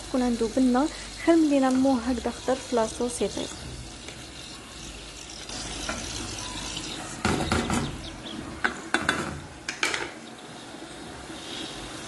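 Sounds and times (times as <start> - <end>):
food sizzling in a pot: 0.0 - 12.0
utensil scraping a pot: 0.3 - 7.5, 11.2 - 12.0.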